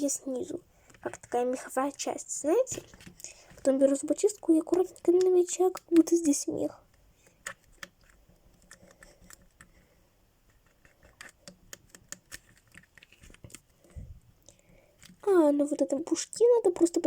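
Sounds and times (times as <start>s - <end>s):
toothpick scratching clay: 10.5s - 13.6s.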